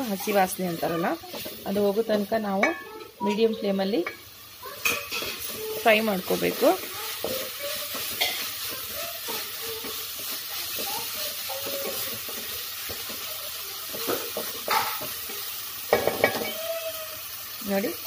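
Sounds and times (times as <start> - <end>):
masala sizzling in oil: 0.0 - 18.0
wooden spatula scraping a pot: 4.8 - 15.4.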